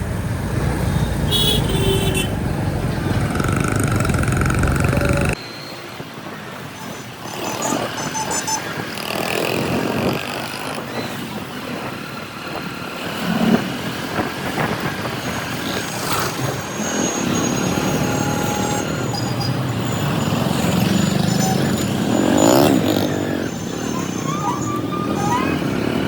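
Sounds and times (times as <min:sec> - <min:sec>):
motorcycle engine: 0:00.0 - 0:05.4
vehicle passing: 0:00.0 - 0:05.4
road traffic din: 0:00.0 - 0:26.0
short high beeps: 0:07.3 - 0:08.7.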